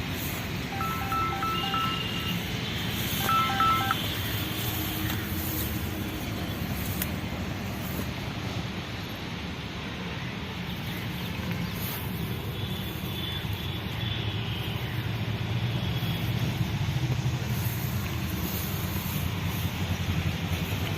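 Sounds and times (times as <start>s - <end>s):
engine rumbling: 15.2s - 20.9s.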